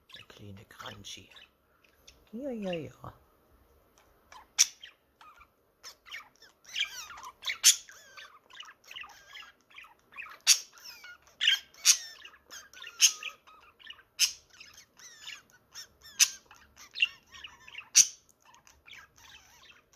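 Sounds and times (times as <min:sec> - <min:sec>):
budgerigar chattering: 0:04.3 - 0:19.9
budgerigar sharp chirps: 0:04.3 - 0:19.9.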